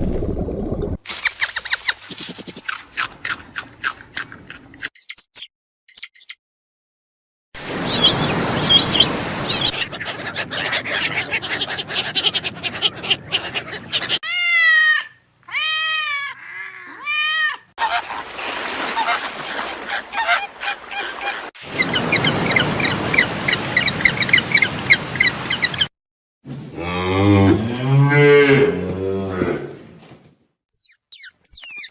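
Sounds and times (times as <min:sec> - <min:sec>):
waterfowl honking and quacking: 0:09.7 - 0:14.2, 0:17.8 - 0:23.3.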